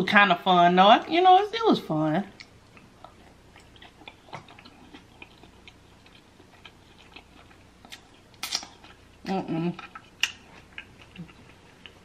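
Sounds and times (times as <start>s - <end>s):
wet mouth chewing clicks: 2.3s - 12.0s
lip smack: 7.9s - 8.7s.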